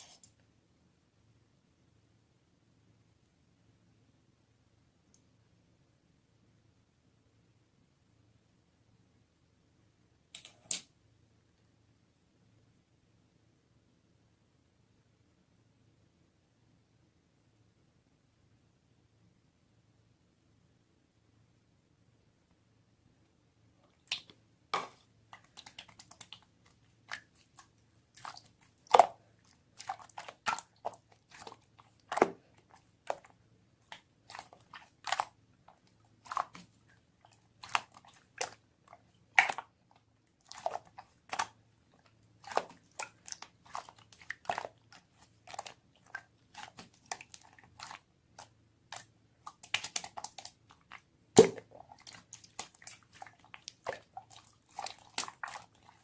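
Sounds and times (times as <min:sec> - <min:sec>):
slime squeezed by hand: 0:48.9 - 0:55.9.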